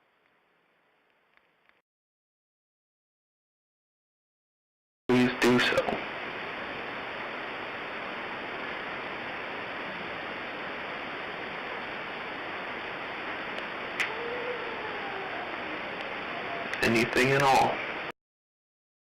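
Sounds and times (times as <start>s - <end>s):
recording hiss: 0.0s - 1.8s, 5.1s - 18.1s.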